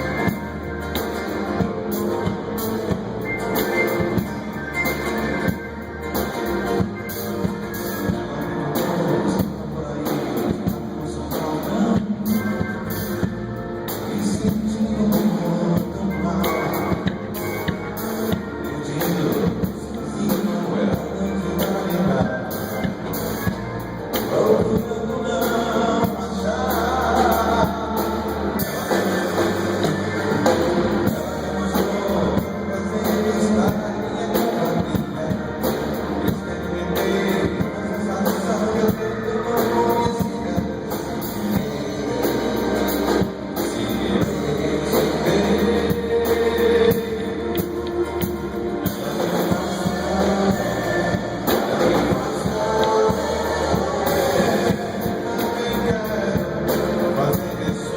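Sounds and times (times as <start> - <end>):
pop-rock band music: 0.0 - 57.9.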